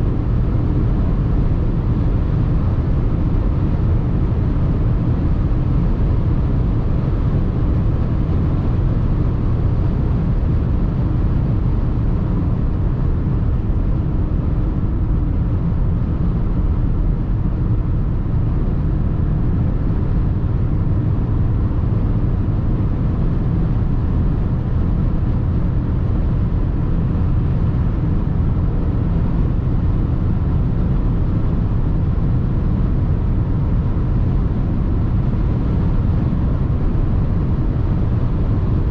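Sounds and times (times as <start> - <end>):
road and wind noise: 0.0 - 38.9.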